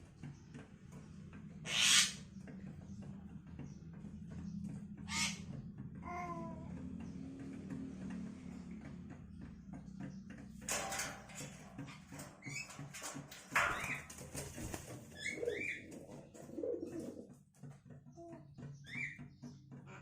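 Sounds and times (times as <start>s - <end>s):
starlings chirping: 1.5s - 5.6s, 8.8s - 17.3s, 18.6s - 20.0s
rustling and wing-flapping: 6.9s - 19.9s.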